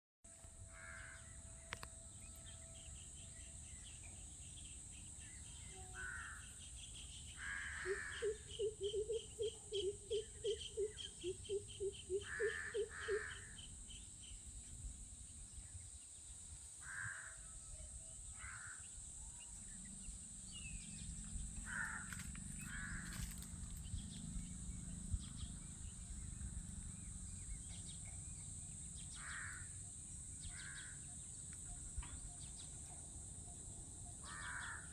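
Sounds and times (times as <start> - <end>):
crow cawing: 0.7 - 1.4, 5.9 - 6.5, 7.4 - 9.2, 12.1 - 13.6, 16.8 - 17.5, 18.4 - 18.8, 21.6 - 23.5, 29.2 - 29.7, 30.5 - 31.0, 34.2 - 34.9.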